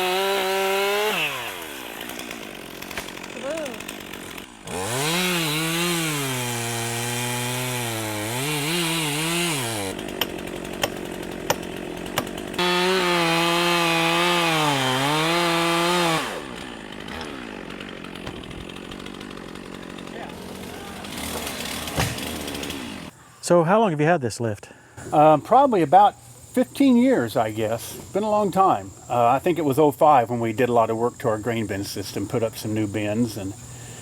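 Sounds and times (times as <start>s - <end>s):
chainsaw cutting wood: 0.0s - 23.2s.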